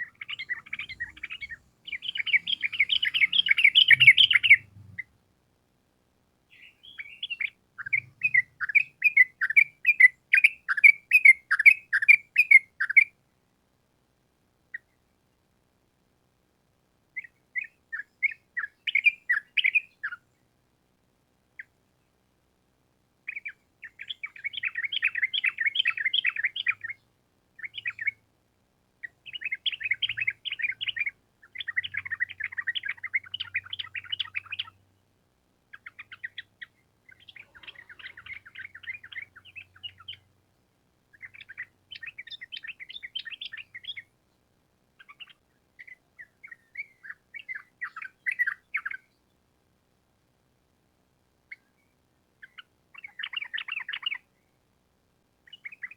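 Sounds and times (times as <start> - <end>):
bulbul singing trilled phrases: 0.0 - 5.1, 6.6 - 13.1, 23.3 - 27.0, 27.6 - 28.2, 29.0 - 34.8, 35.7 - 40.3, 41.2 - 44.1, 52.4 - 54.2.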